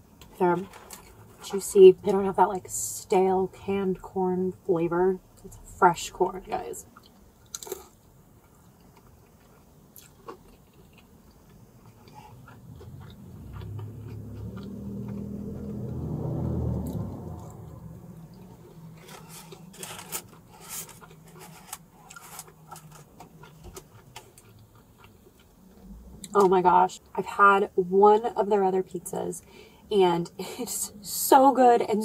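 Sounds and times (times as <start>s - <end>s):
person biting and chewing: 7.0s - 8.0s, 8.8s - 16.0s
low rumble: 12.6s - 19.6s.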